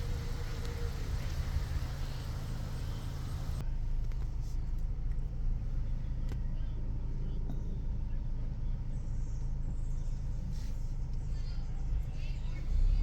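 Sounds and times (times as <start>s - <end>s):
high hiss: 0.0s - 3.6s
car engine rumble from inside: 0.0s - 13.0s.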